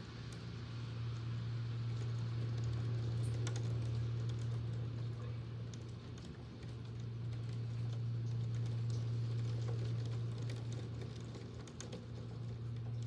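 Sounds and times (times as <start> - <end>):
rain: 0.0 - 13.0.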